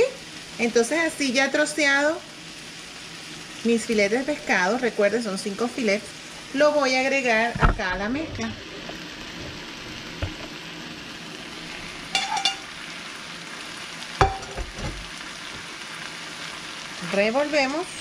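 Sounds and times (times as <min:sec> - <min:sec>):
vegetables and fish sizzling in a pan: 0:00.0 - 0:18.0
plate clinking on pan: 0:12.1 - 0:12.7, 0:14.2 - 0:15.0
spatula knocking on pan: 0:14.2 - 0:15.0.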